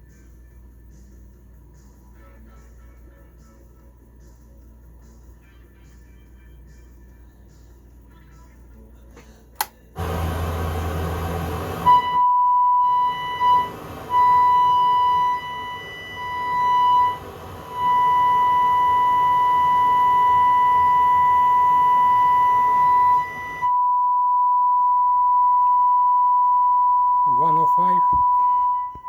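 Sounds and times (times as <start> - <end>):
steady test tone: 10.0 - 29.0.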